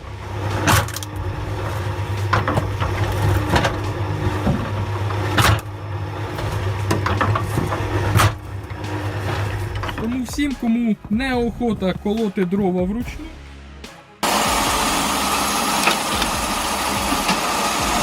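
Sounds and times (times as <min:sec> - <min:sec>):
machine motor humming: 0:00.0 - 0:11.6, 0:14.2 - 0:18.0.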